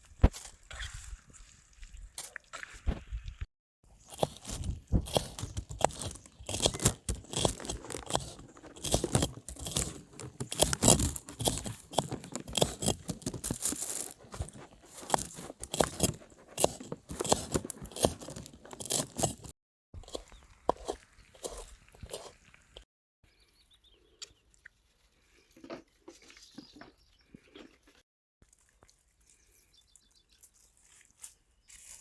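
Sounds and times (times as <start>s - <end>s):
crunching and chewing: 3.9s - 22.8s, 24.2s - 32.0s.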